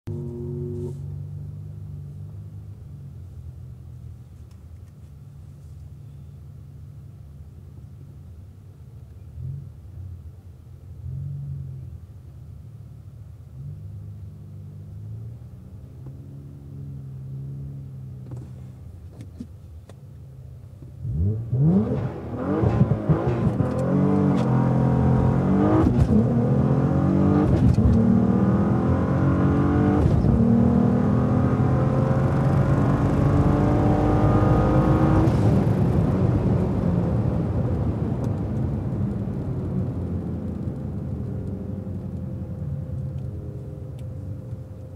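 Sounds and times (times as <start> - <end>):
car engine revving and accelerating: 0.1 - 2.0, 21.0 - 41.5.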